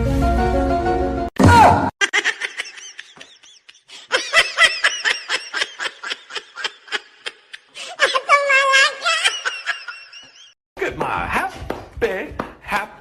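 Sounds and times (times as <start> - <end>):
person laughing: 2.0 - 10.5.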